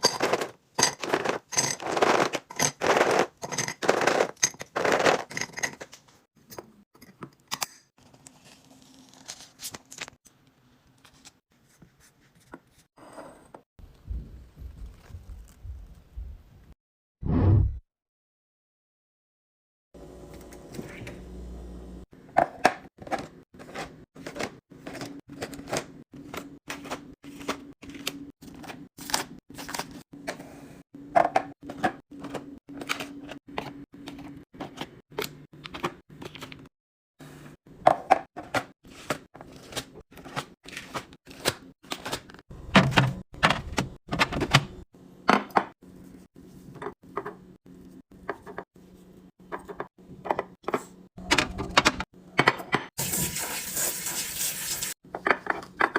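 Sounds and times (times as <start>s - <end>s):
food containers clicking and knocking: 0.0s - 6.1s, 55.0s - 55.9s.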